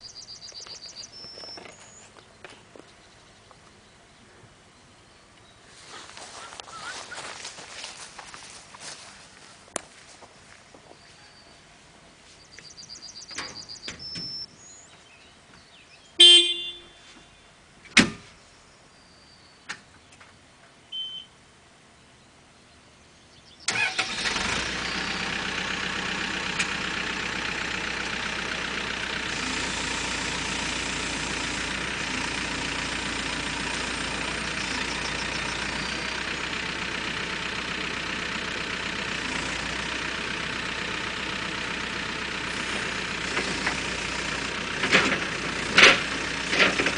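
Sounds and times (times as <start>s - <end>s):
loud horn-like tone: 16.2s - 17.3s
short electronic beeps: 20.9s - 21.4s
diesel engine starting and idling: 23.6s - 46.9s.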